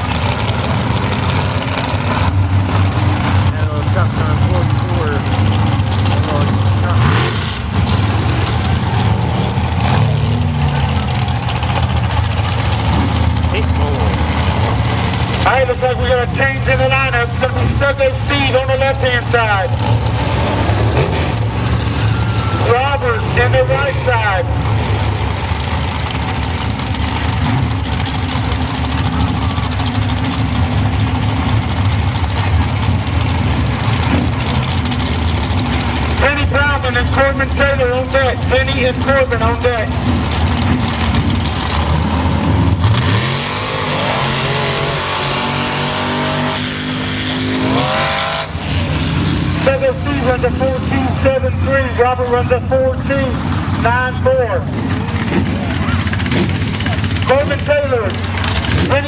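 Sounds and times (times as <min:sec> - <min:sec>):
truck engine revving: 0:00.0 - 0:59.0
truck engines idling: 0:00.0 - 0:59.0.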